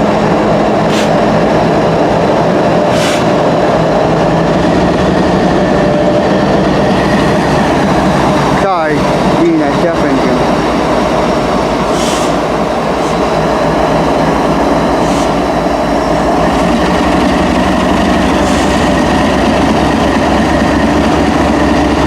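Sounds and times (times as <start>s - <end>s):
freight train rumbling on rails: 0.0s - 22.0s
brief high hisses: 3.0s - 3.3s, 12.0s - 12.4s, 15.0s - 15.4s.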